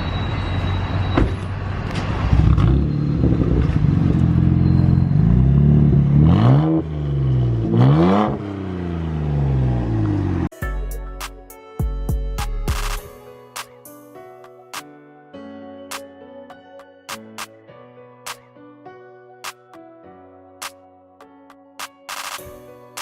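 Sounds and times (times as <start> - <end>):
car engine accelerating hard: 2.2 - 10.5.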